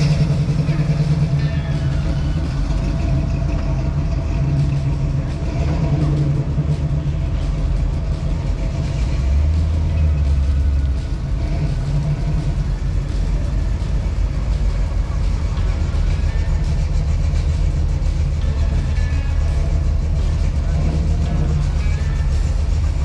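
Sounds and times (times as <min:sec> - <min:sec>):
car engine rumbling: 0:00.0 - 0:23.0.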